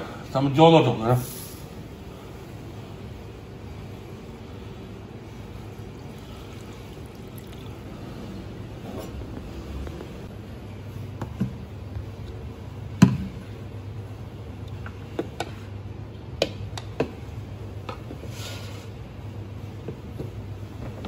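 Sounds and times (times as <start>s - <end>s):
steady low hum: 0.0s - 21.0s
thick sauce pouring: 6.0s - 7.9s.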